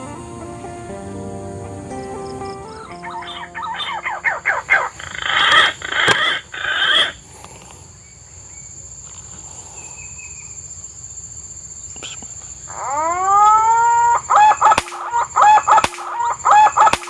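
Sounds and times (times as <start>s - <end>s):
high insect trill: 0.0s - 17.0s
rapid sweeping animal calls: 3.0s - 7.2s, 12.7s - 17.0s.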